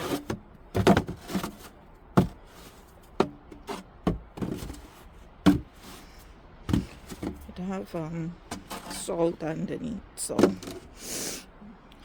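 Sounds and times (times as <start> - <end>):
sharp knocks and thumps: 0.0 - 6.0, 6.6 - 7.6, 10.3 - 10.9.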